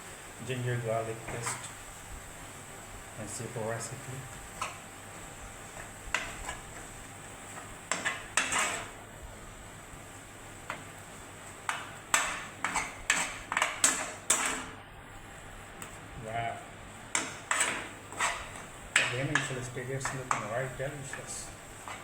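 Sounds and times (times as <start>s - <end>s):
utensil clinking and scraping a dish: 5.7s - 6.9s, 7.5s - 9.0s, 11.6s - 14.8s, 17.1s - 22.0s.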